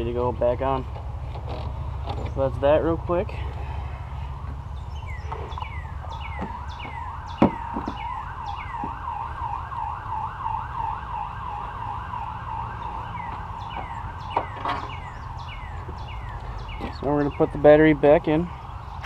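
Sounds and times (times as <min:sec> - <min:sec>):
siren yelping: 0:05.0 - 0:16.8.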